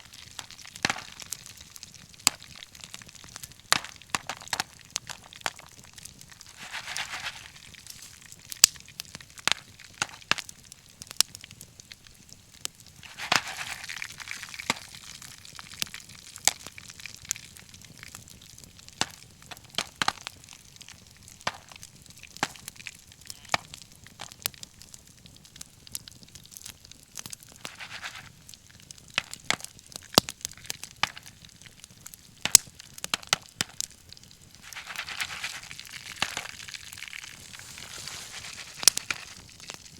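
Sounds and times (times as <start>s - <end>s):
wood fire crackling and popping: 0.0s - 39.9s
fire hissing: 6.4s - 8.7s, 34.4s - 39.9s.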